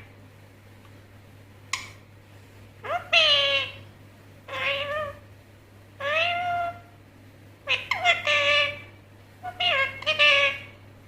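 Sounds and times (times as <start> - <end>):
parrot calling: 2.8 - 5.3, 6.0 - 6.9, 7.6 - 10.8.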